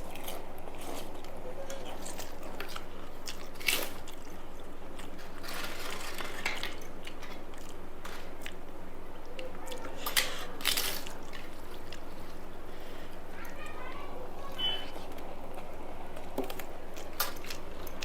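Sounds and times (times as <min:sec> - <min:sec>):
wet chewing: 0:00.0 - 0:13.6
sharp food crunches: 0:02.0 - 0:04.4.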